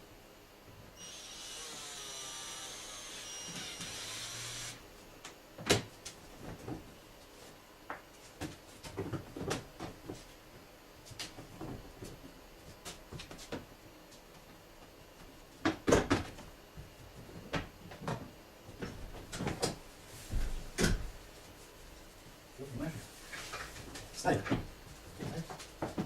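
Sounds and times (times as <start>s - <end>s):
small electric tool motor whirring: 1.0s - 4.8s.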